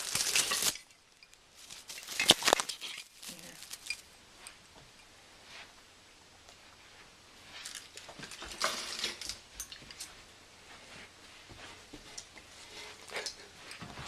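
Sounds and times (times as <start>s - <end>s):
ornaments clinking: 0.0s - 5.1s.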